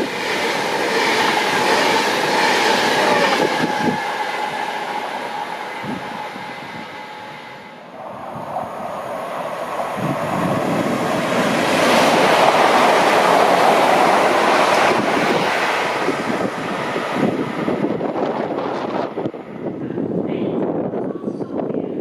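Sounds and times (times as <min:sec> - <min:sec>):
train passing at speed: 0:00.0 - 0:22.0.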